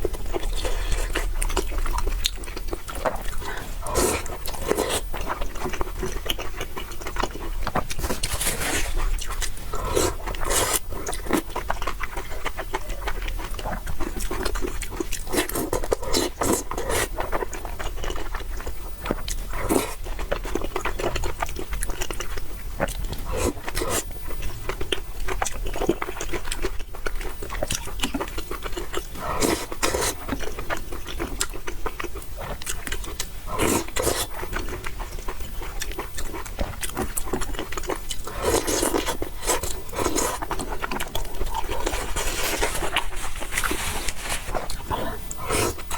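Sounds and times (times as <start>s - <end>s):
wet chewing: 0.0s - 45.9s
slurping noodles: 3.3s - 5.2s, 7.8s - 11.5s, 23.1s - 24.1s, 29.2s - 30.3s, 33.5s - 34.3s, 38.2s - 45.9s.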